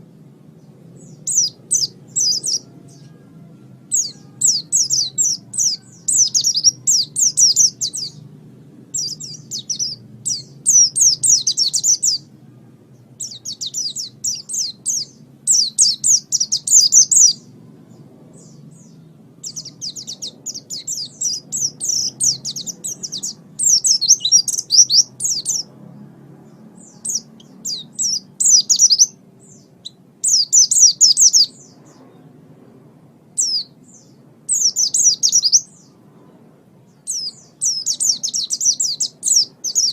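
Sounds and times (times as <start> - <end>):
faint low hum: 0.0 - 39.9
bird twittering: 1.0 - 3.2, 8.9 - 12.3, 13.2 - 17.5, 18.4 - 25.7, 26.9 - 31.8, 33.4 - 35.9, 37.1 - 39.9.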